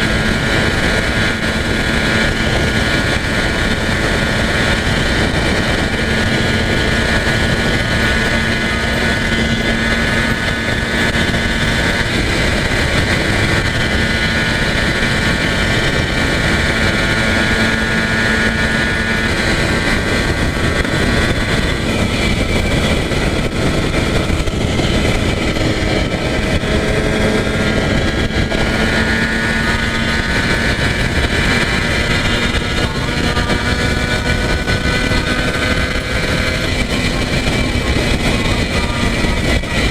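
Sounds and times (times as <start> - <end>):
road noise: 0.0 - 39.9
two-stroke engine cruising: 0.0 - 39.9
wind noise: 0.0 - 39.9.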